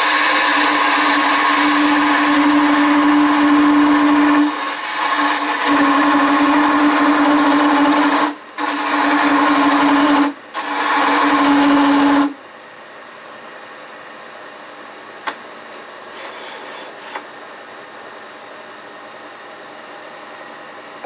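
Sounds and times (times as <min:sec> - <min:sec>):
gouge cutting wood on lathe: 0:00.0 - 0:12.3
steady lathe hum: 0:00.0 - 0:19.4.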